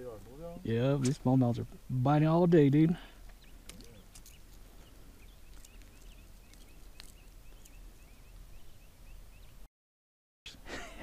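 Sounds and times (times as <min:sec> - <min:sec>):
bird chirping: 0:00.0 - 0:09.7
light clicks of fishing jig: 0:03.6 - 0:04.6.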